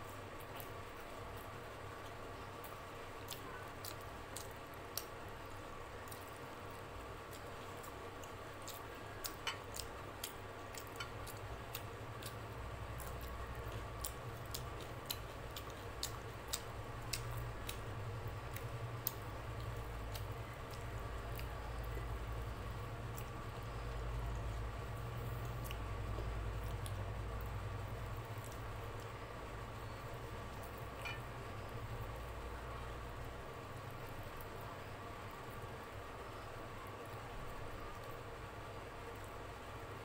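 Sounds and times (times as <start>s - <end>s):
steady low hum: 0.0s - 40.0s
person chewing: 0.4s - 5.2s, 7.2s - 21.9s, 25.2s - 27.0s
lip smacks and mouth clicks: 13.0s - 17.8s.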